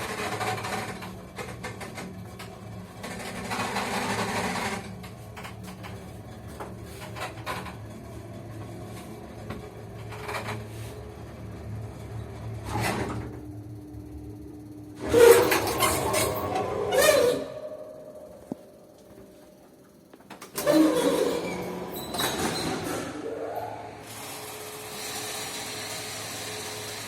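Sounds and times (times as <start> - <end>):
lift motor humming: 4.2 - 25.5.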